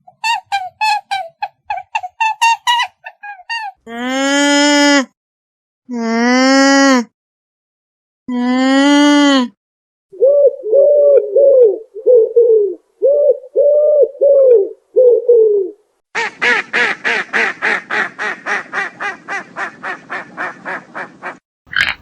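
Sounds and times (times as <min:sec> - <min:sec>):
rapid quacking calls: 0:16.2 - 0:22.0
short low arching bird calls: 0:21.2 - 0:22.0.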